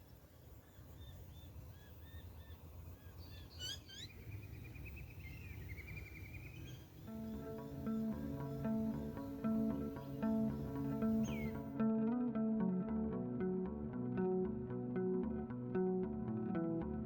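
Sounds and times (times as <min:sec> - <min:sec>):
birds calling: 0:00.7 - 0:11.8
guitar music: 0:07.1 - 0:17.0.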